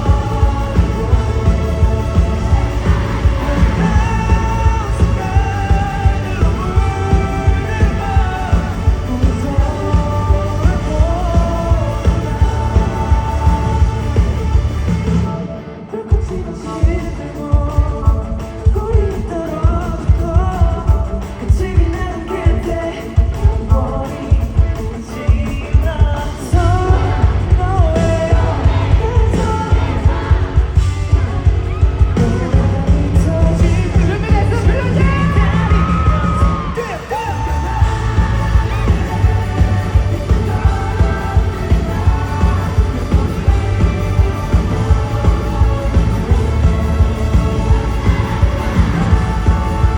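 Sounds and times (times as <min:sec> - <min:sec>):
sustained bass notes: 0:00.0 - 0:15.7, 0:26.5 - 0:49.9
heavy drum beat: 0:00.0 - 0:49.9
live rock band playing: 0:00.0 - 0:49.9
person singing: 0:00.0 - 0:49.9.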